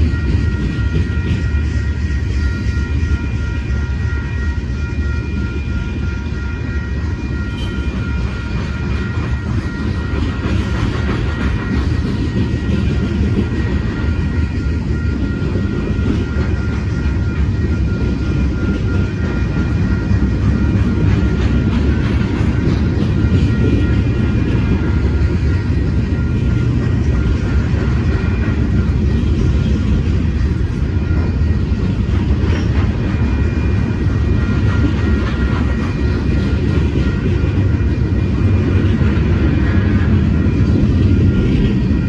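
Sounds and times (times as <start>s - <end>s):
faint high ringing tone: 0.0s - 10.7s, 11.4s - 32.1s
freight train wheels rumbling: 0.0s - 42.0s.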